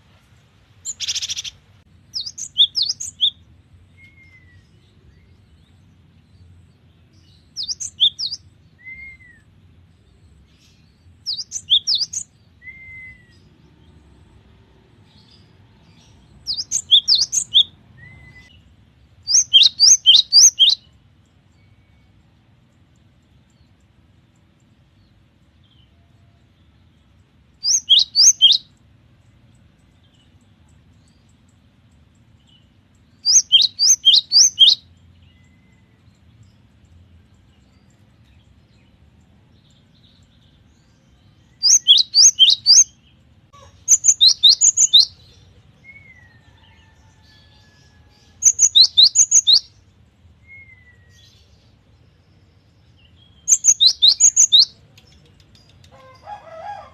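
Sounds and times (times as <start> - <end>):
bird singing sharp whistled notes: 4.0 - 4.8, 7.6 - 9.5, 11.3 - 13.5, 19.3 - 20.9, 27.6 - 28.7, 33.2 - 35.8, 41.5 - 42.9, 48.5 - 49.7, 50.4 - 51.3, 53.4 - 54.8.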